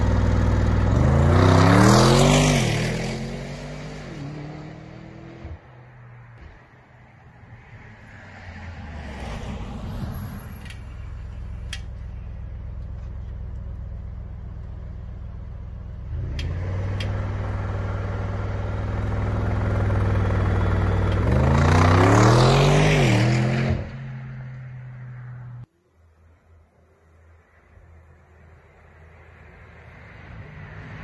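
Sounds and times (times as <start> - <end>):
car engine revving: 0.0 - 5.7, 10.8 - 25.7.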